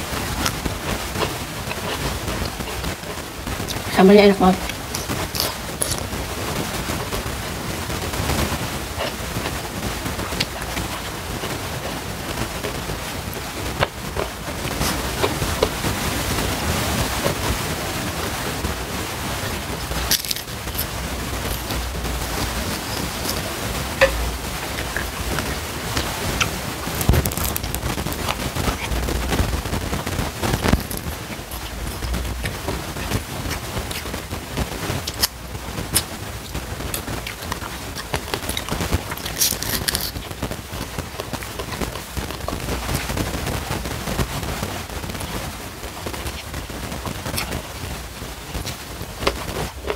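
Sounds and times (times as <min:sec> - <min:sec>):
steady hiss: 0:00.0 - 0:49.9
wet chewing mouth sounds: 0:04.6 - 0:06.1, 0:08.4 - 0:16.5, 0:19.4 - 0:43.2, 0:47.0 - 0:47.6, 0:48.6 - 0:49.9
crunching bite: 0:04.7 - 0:06.1, 0:19.4 - 0:34.4, 0:35.0 - 0:43.1
sharp crunches of biting: 0:19.8 - 0:29.4, 0:38.3 - 0:40.3.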